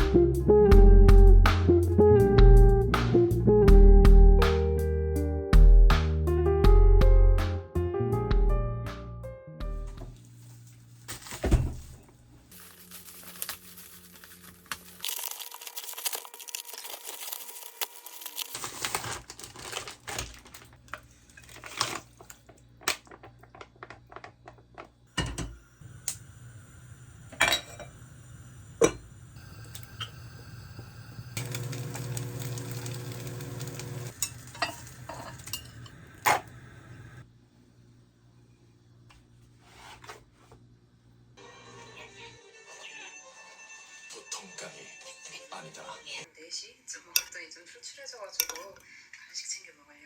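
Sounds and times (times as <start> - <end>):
dishes and utensils clattering: 25.2 - 25.6, 27.3 - 28.0, 33.8 - 36.5
hiss: 25.6 - 31.6.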